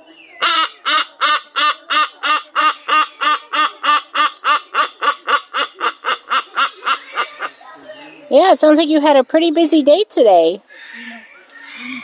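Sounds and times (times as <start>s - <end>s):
bird calling in nasal notes: 0.3s - 8.1s.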